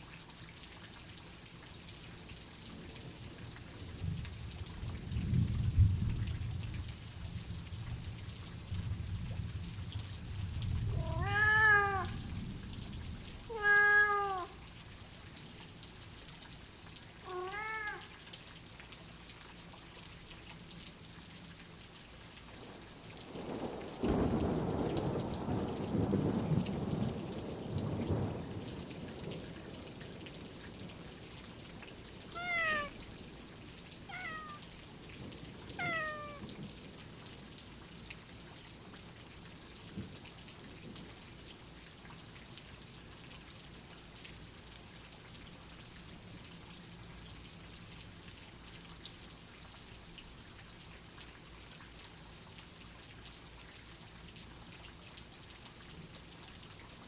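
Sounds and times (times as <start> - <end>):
steady rain: 0.0 - 57.0
thunder rolling: 10.8 - 12.6
cat meowing: 10.9 - 12.3, 13.5 - 14.6, 17.2 - 18.2, 32.3 - 33.0, 34.1 - 34.6, 35.8 - 36.5.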